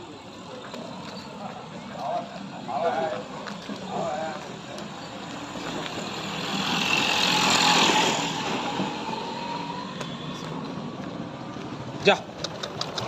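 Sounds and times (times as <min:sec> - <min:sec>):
motor vehicle passing: 0:00.5 - 0:13.0.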